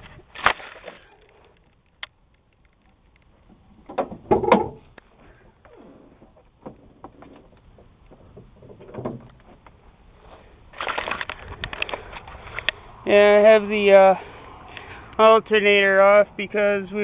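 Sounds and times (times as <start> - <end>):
loud clunks: 3.9 - 4.8
light knocks and rustling: 6.0 - 9.8.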